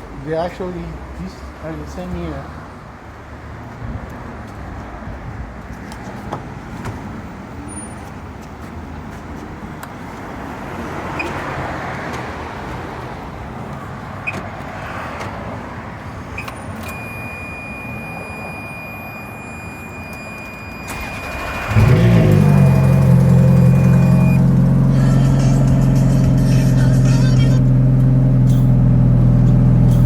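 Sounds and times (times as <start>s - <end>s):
thin steady high tone: 16.9s - 21.4s.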